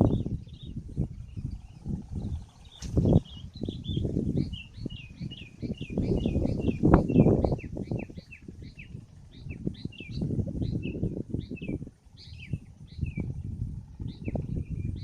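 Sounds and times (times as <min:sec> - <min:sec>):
small bird chirping: 0:00.0 - 0:15.0
wind buffeting microphone: 0:00.0 - 0:15.0.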